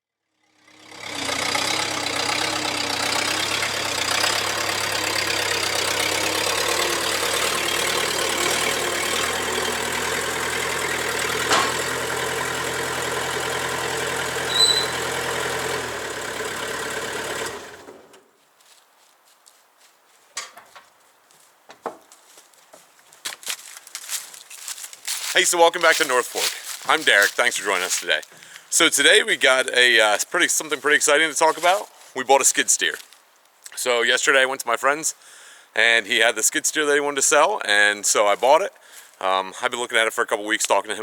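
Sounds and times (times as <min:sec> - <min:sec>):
diesel engine running: 0:00.3 - 0:18.3, 0:25.1 - 0:31.9
brief high chirp: 0:14.5 - 0:15.0.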